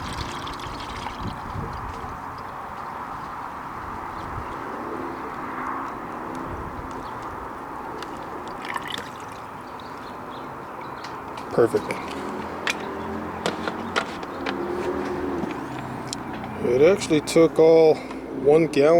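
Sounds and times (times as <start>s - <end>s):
fluid pouring from a jug: 0.0s - 2.1s, 8.4s - 9.7s.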